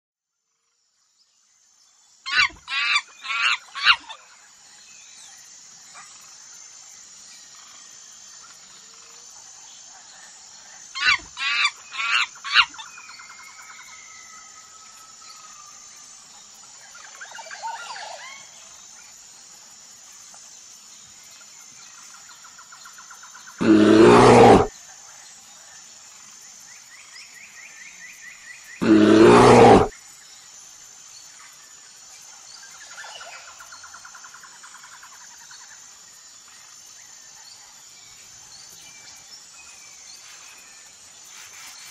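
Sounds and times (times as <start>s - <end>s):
monkey calling: 23.6s - 24.7s.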